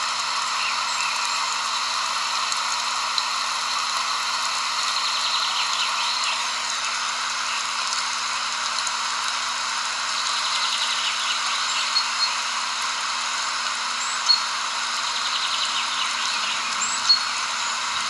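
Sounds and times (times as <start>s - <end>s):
chorus of calling insects: 4.8s - 8.4s, 10.0s - 12.6s, 14.2s - 18.0s.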